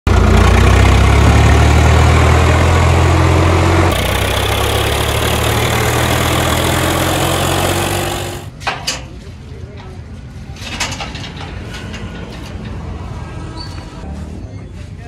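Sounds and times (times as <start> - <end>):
diesel engine of heavy machinery: 0.1 - 8.8.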